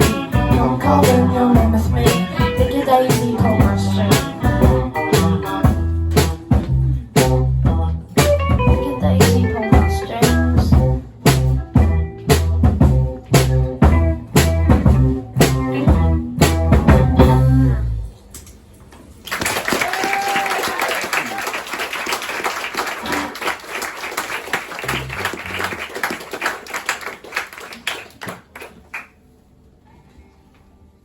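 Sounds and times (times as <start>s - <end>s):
rock band playing: 0.0s - 18.0s, 24.8s - 26.0s
audience clapping and cheering: 19.2s - 29.2s.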